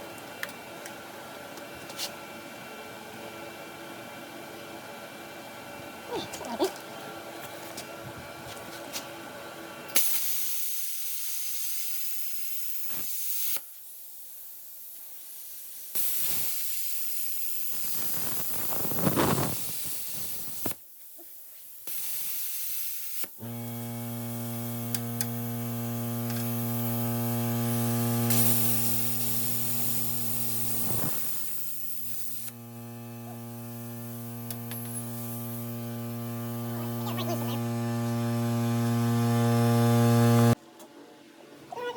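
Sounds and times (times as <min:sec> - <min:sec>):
machine electrical hum: 0:23.4 - 0:40.6
plasma cutter hissing: 0:24.7 - 0:40.5.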